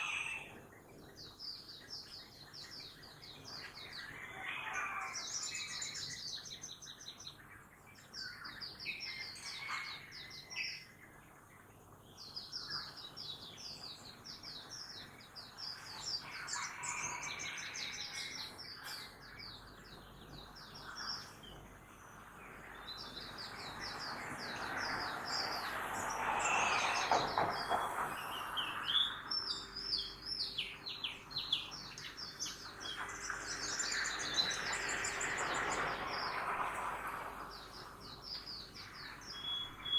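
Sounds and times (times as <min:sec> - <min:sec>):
faint town noise: 0:00.0 - 0:39.9
small birds chirping: 0:00.0 - 0:39.9
vehicle passing: 0:22.2 - 0:30.1, 0:32.7 - 0:39.2.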